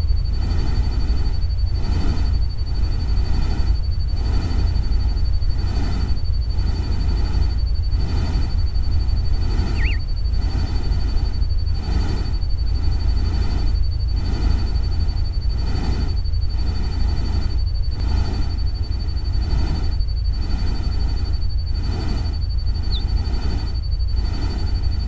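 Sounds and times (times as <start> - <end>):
warbling chirp: 8.1 - 11.2, 22.6 - 23.6
thin high tone: 9.6 - 10.0.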